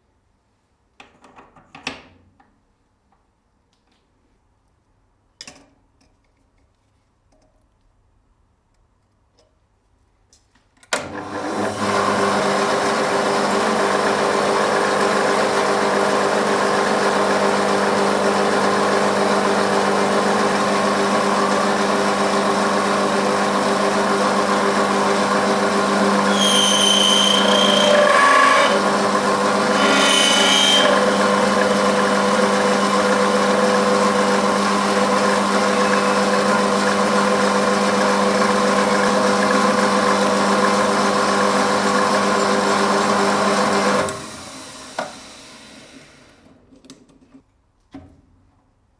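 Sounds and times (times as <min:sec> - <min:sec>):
machine tool humming: 0:11.2 - 0:45.5
high-pitched squeal: 0:26.2 - 0:28.8, 0:29.6 - 0:31.4.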